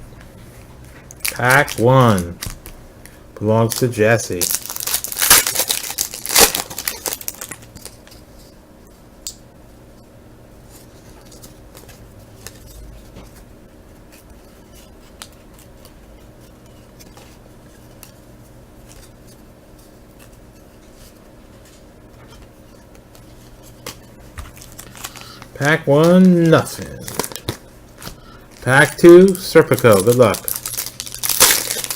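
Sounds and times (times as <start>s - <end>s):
low electrical hum: 0.0s - 31.9s
foil wrapper crinkling: 1.2s - 8.2s, 23.2s - 31.9s
cards clicking and rustling: 22.9s - 31.9s.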